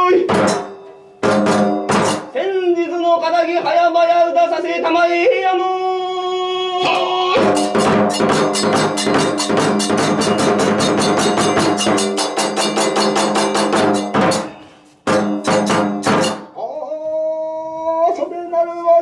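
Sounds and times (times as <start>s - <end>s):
drum beat: 0.0s - 2.4s, 6.8s - 16.6s
hand cymbals: 0.0s - 2.4s, 6.8s - 16.6s.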